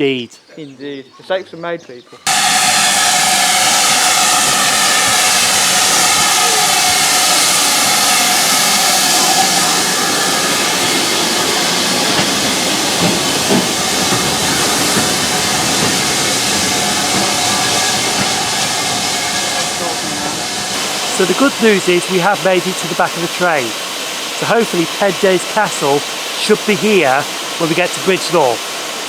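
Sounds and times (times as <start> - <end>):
steam locomotive hissing steam: 2.2 - 29.0.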